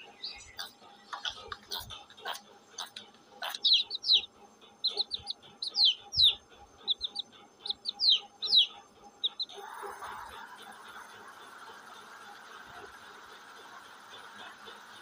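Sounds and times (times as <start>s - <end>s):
chick peeping: 0.0s - 15.0s.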